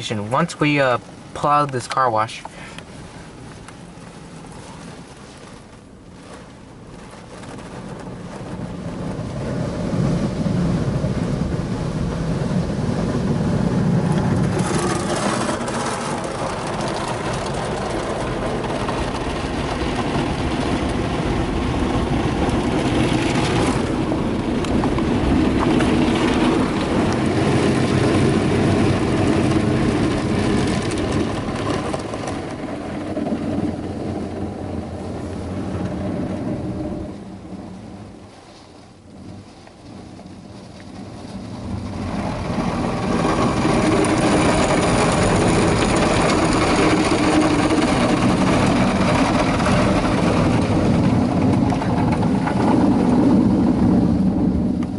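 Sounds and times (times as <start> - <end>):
car wash brushes swishing: 13.0 - 34.8.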